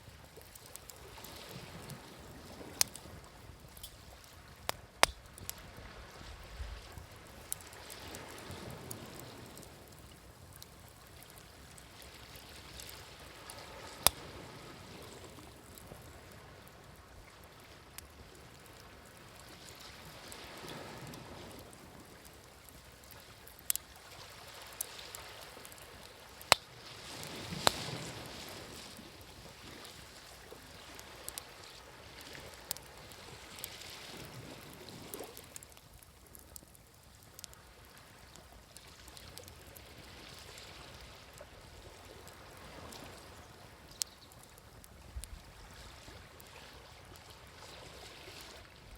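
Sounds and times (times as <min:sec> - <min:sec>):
wood fire crackling and popping: 0:00.0 - 0:45.6
gentle waves washing in: 0:00.0 - 0:48.9.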